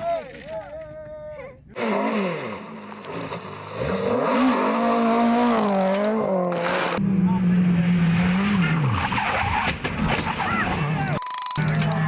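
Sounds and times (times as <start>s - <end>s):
rally car engine revving: 1.8s - 10.2s.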